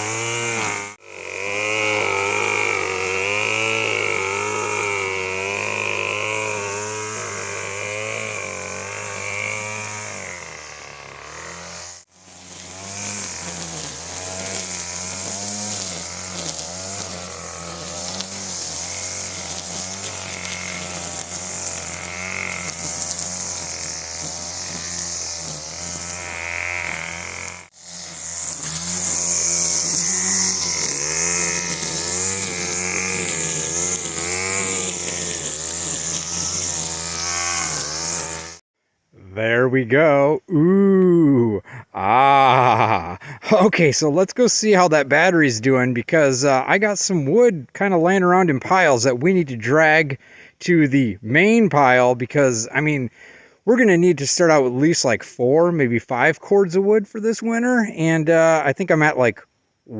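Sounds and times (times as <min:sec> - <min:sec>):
string trimmer engine running: 0:00.0 - 0:38.6, 0:41.6 - 0:44.8.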